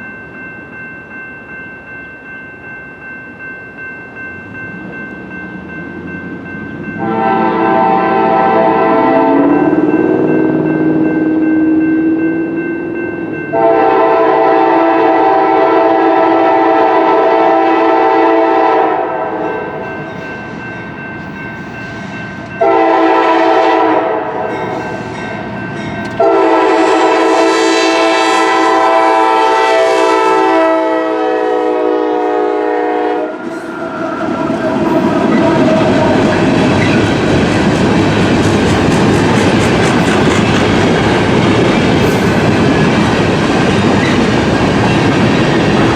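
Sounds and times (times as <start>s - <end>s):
train rumble and wheel clatter: 0.0s - 45.9s
locomotive air horn blasts: 7.0s - 10.0s, 13.5s - 19.5s, 22.6s - 24.8s, 26.2s - 33.5s.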